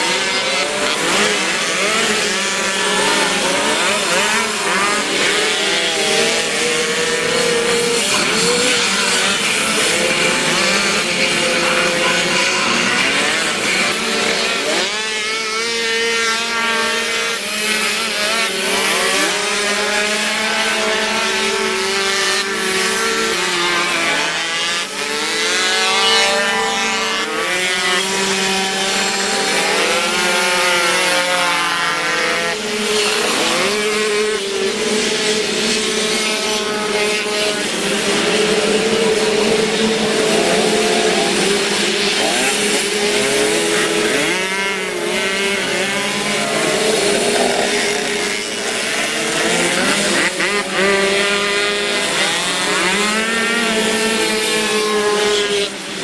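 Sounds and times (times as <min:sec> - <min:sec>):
moped engines racing: 0:00.0 - 0:56.0.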